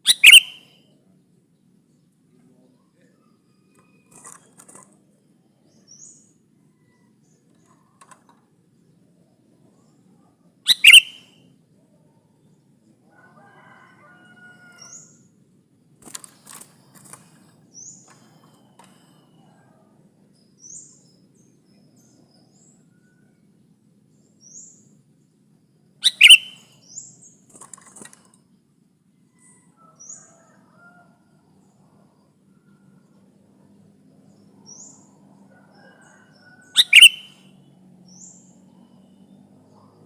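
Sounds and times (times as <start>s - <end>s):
loud sharp bird call: 0.0s - 0.8s, 10.7s - 11.4s, 26.0s - 27.0s, 36.7s - 37.6s
bulbul high chirps: 0.1s - 0.6s, 10.7s - 11.3s, 26.0s - 26.7s, 36.8s - 37.4s.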